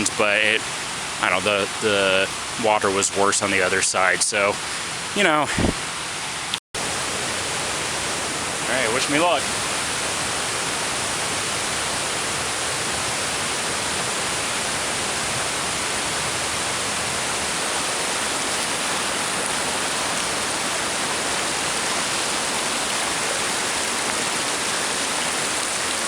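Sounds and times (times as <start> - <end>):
river water rushing: 6.8 - 26.0.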